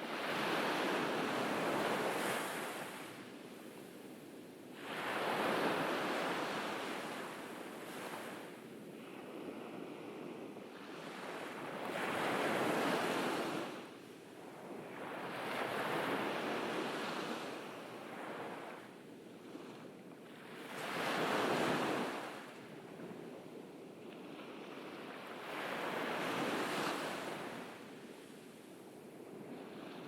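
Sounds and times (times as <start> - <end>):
waves breaking on beach: 24.3 - 28.8.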